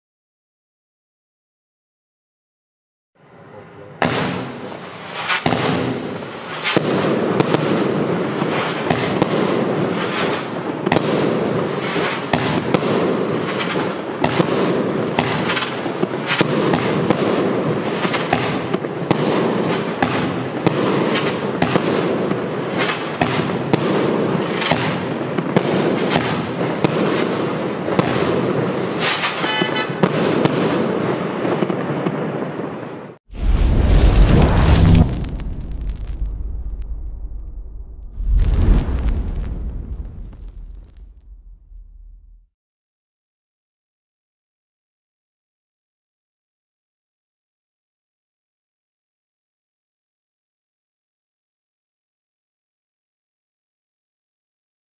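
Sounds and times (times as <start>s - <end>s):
firework crackling and popping: 4.1s - 31.8s, 33.3s - 42.5s.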